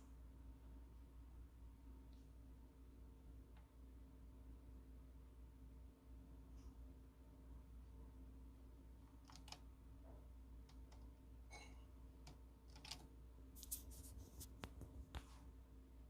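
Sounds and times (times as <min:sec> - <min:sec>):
faint clicks and light taps: 0:12.2 - 0:15.4.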